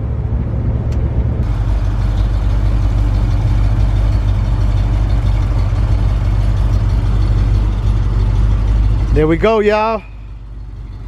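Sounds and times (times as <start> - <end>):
loud car engine idling: 0.0 - 11.0.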